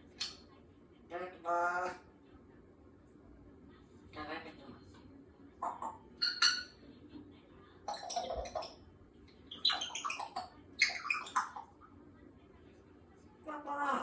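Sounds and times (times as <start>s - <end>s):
parrot chattering: 5.6s - 6.8s, 7.9s - 8.8s, 9.5s - 11.8s.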